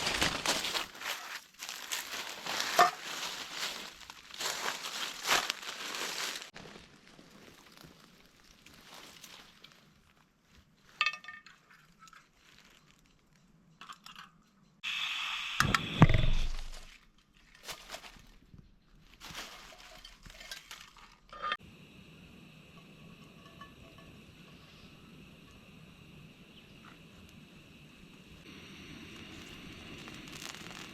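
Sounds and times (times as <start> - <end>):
steady high hum: 21.6 - 30.3
cookware clinking: 23.2 - 24.6.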